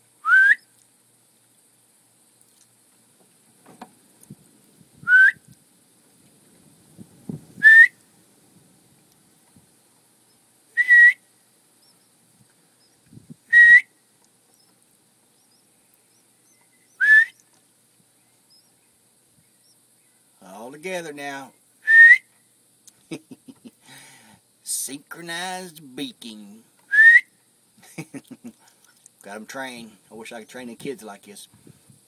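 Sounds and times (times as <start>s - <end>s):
person whistling rising note: 0.2s - 0.6s, 5.1s - 5.4s, 7.6s - 7.9s, 10.8s - 11.2s, 13.5s - 13.8s, 17.0s - 17.4s, 21.9s - 22.2s, 26.9s - 27.2s.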